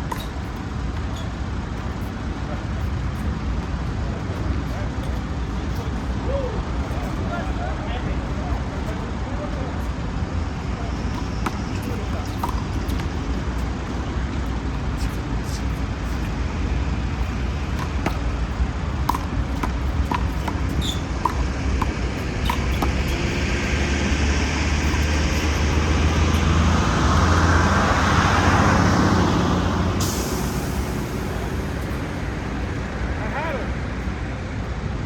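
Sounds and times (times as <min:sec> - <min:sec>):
road traffic rumble: 0:00.0 - 0:35.0
vehicle passing: 0:21.5 - 0:34.0.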